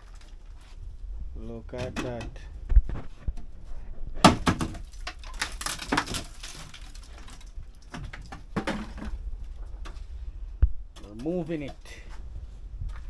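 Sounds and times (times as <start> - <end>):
wooden items clattering and scraping: 0.0 - 10.3
sharp knocks: 4.2 - 4.9.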